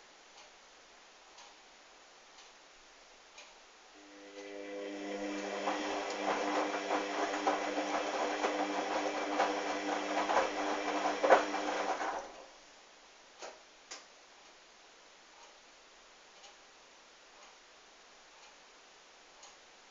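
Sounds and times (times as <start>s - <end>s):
washing machine drum humming and rattling: 4.1s - 12.5s.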